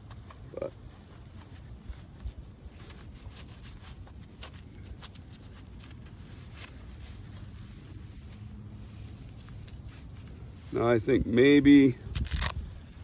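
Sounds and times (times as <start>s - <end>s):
steady low rumble: 0.0s - 13.0s
velcro clicks and fabric rustles: 12.1s - 13.0s.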